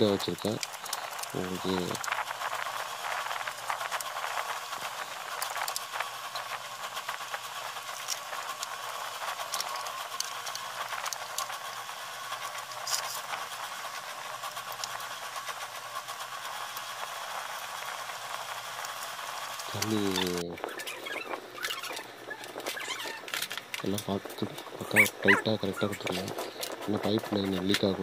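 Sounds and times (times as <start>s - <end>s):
steady hiss: 0.0s - 20.6s
quick clicks and rattles of parts: 12.4s - 13.5s.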